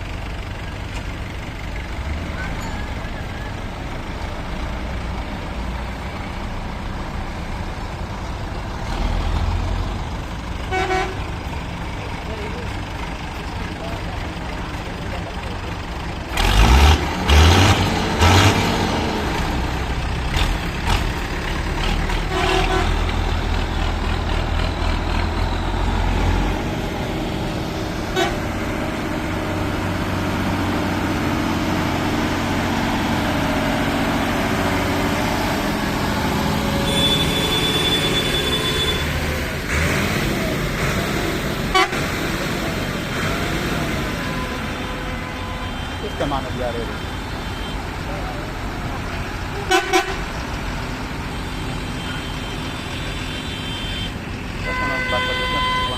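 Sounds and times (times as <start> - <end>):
tractor engines rumbling: 0.0 - 55.9
horn sounding: 10.6 - 11.3, 22.2 - 23.2, 28.1 - 28.8, 36.7 - 39.3, 41.7 - 42.1, 49.5 - 50.3, 52.0 - 55.9.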